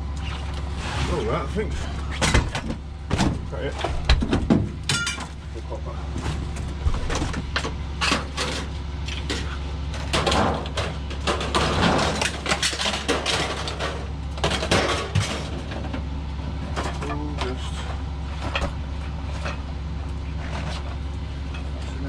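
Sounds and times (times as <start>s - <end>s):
steady low hum: 0.0s - 22.0s
scrap metal clanking: 8.0s - 16.0s.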